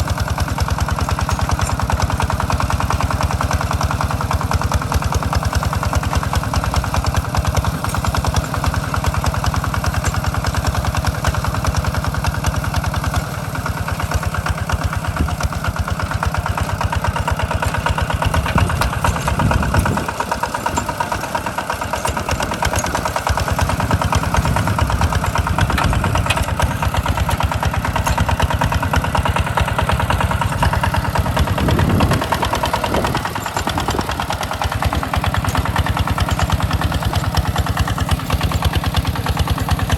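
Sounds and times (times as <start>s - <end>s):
walk-behind tractor engine running: 0.0s - 39.9s.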